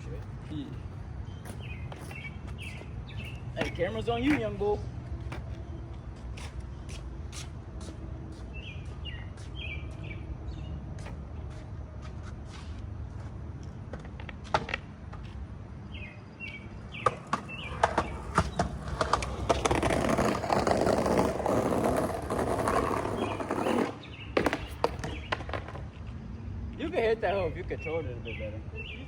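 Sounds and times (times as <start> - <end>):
birds chirping: 0.0 - 10.8, 15.8 - 29.0
skateboard wheels rolling on pavement: 0.0 - 27.7
skateboard clacks: 17.0 - 25.9.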